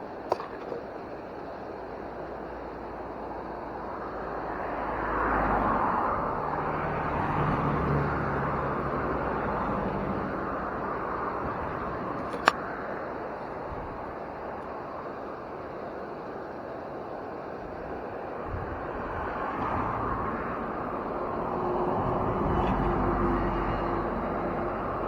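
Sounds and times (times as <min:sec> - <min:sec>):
vehicle passing by: 0:04.5 - 0:12.5, 0:19.0 - 0:25.0.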